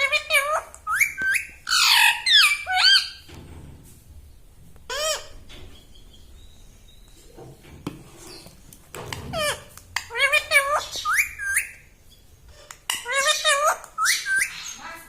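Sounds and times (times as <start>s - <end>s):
parakeet sharp high calls: 0.0s - 3.2s.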